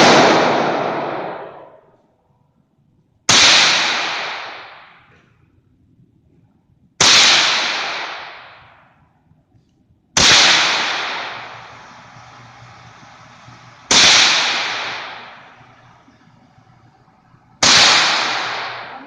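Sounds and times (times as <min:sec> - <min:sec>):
rifle shots with echo: 0:00.0 - 0:01.8, 0:03.3 - 0:05.1, 0:07.0 - 0:08.8, 0:10.2 - 0:19.0.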